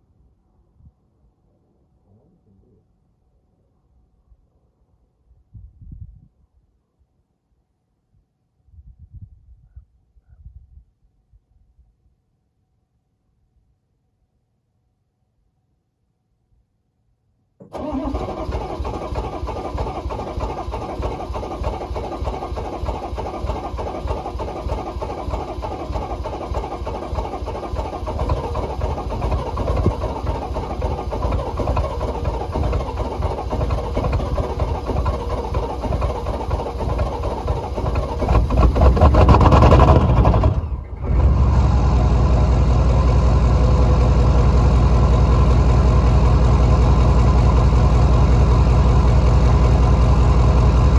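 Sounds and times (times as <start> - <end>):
diesel engine clatter: 17.6 - 50.9.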